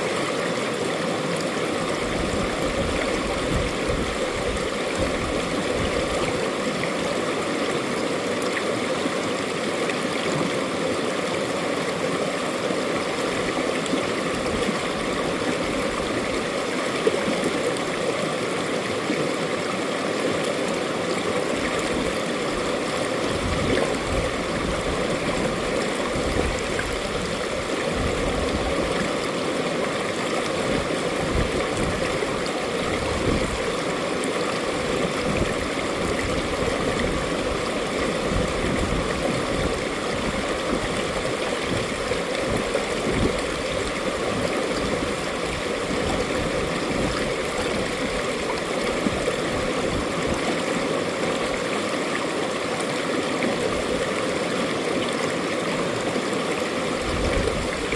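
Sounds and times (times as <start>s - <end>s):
stream flowing over rocks: 0.0s - 57.9s.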